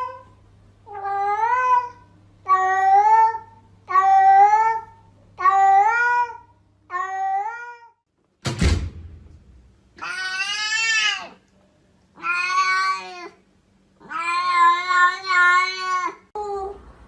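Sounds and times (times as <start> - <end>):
cat meowing: 10.0 - 11.4, 12.2 - 13.4, 14.0 - 16.3.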